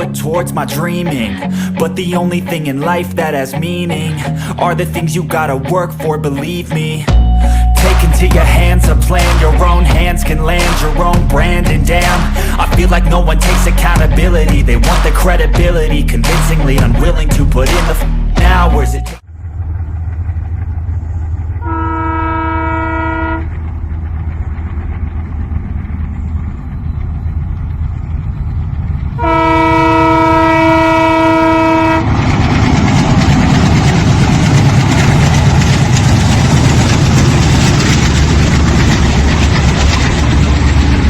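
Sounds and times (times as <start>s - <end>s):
train passing at speed: 0.0s - 41.0s
train horn: 21.6s - 23.6s, 29.2s - 32.2s
wheels clickety-clack: 32.0s - 41.0s.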